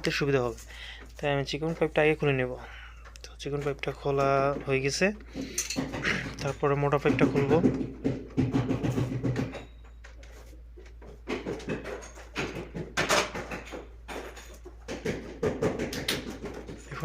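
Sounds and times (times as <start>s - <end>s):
hand tools clicking and knocking: 0.0s - 17.0s.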